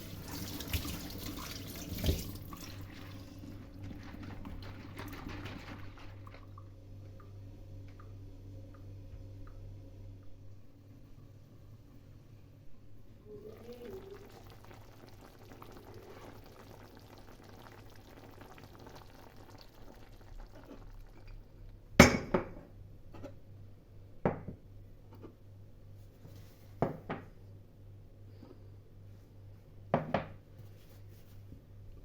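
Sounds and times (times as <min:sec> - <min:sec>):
faint pouring: 0:00.0 - 0:07.4, 0:13.0 - 0:21.6.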